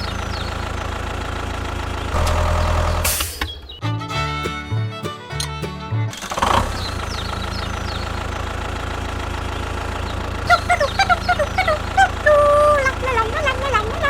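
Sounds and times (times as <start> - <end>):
engine idling: 0.0 - 14.0
music: 3.8 - 6.6.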